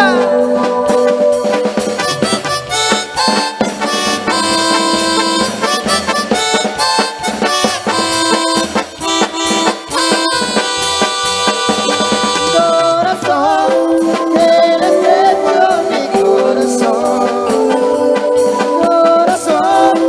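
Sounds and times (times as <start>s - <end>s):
band lead melody: 0.0s - 20.0s
busy drum beat: 0.0s - 20.0s.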